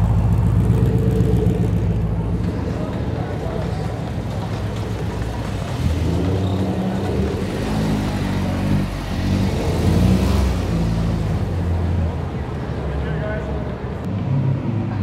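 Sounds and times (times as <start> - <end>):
car engine running: 0.0 - 10.2.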